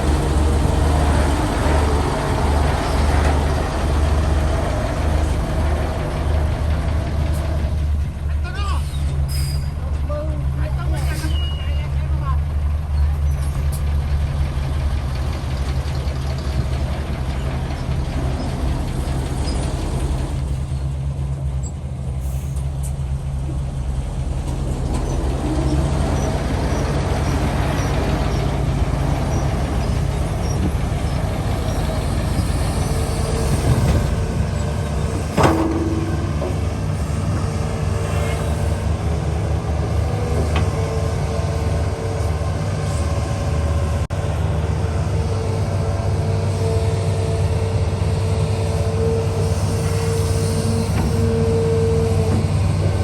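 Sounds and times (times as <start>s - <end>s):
heavy engine running: 0.0s - 53.0s
sharp metallic bang: 35.2s - 37.6s.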